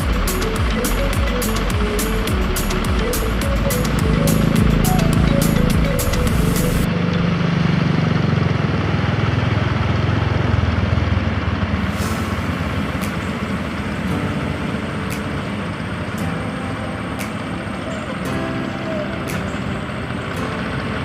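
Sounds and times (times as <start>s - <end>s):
engine low hum: 0.0s - 21.0s
steady wash of noise: 11.3s - 21.0s.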